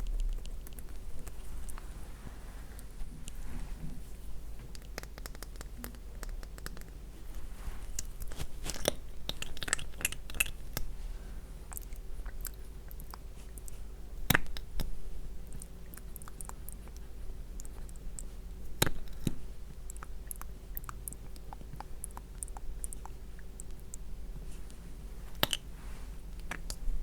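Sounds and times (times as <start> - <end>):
wet sticky mouth clicks: 4.7 - 7.0, 8.0 - 10.9, 25.3 - 25.7.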